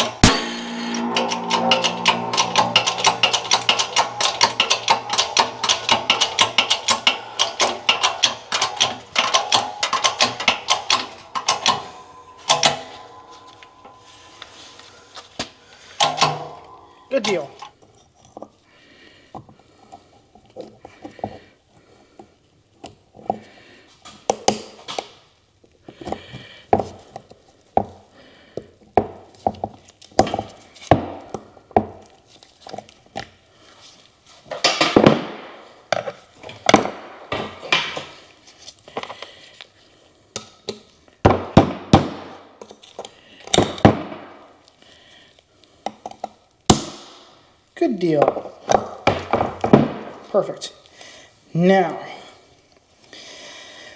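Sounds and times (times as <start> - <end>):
metal tools clinking and knocking: 0.0 - 15.2.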